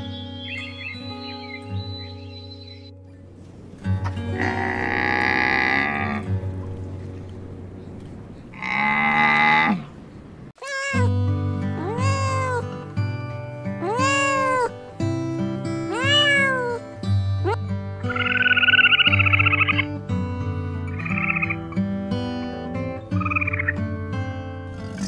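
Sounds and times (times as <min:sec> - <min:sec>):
camel calling: 0:04.0 - 0:06.4, 0:08.5 - 0:09.9, 0:10.6 - 0:12.9, 0:13.7 - 0:14.9, 0:15.7 - 0:20.0, 0:20.9 - 0:21.8
cat meowing: 0:10.6 - 0:11.1, 0:11.8 - 0:12.7, 0:13.8 - 0:14.7, 0:15.9 - 0:16.8
background music: 0:11.1 - 0:25.0.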